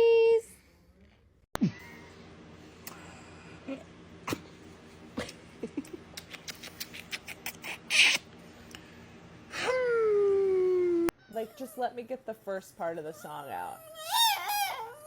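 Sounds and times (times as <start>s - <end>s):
steady low hum: 0.0s - 15.0s
small animal squeaking: 13.2s - 15.0s.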